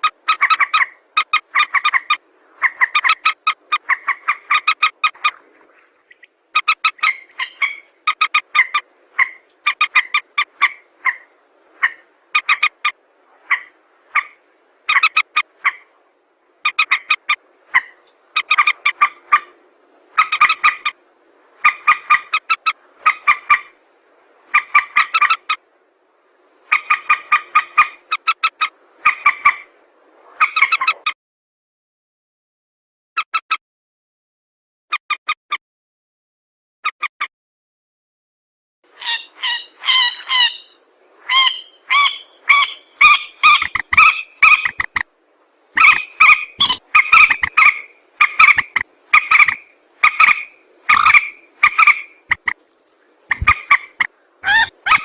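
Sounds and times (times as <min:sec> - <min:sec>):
recorded rail bird calls: 0:00.0 - 0:16.0, 0:16.6 - 0:21.0, 0:39.0 - 0:45.1, 0:45.8 - 0:55.0.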